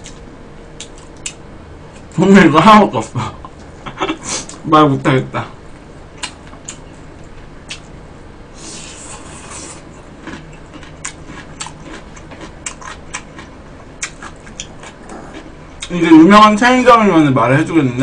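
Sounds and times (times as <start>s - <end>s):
breathy hiss: 8.5s - 9.8s
chewing: 9.0s - 15.9s.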